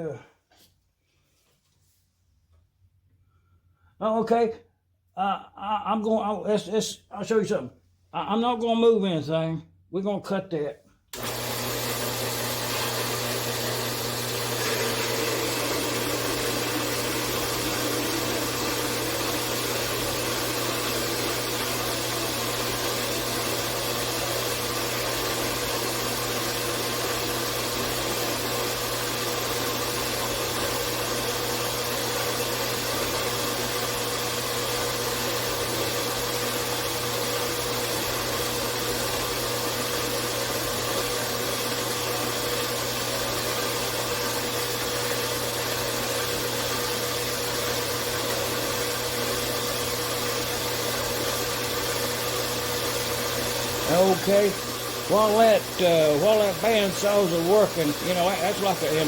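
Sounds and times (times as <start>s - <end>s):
metal-cutting bandsaw sawing steel: 53.8s - 59.0s.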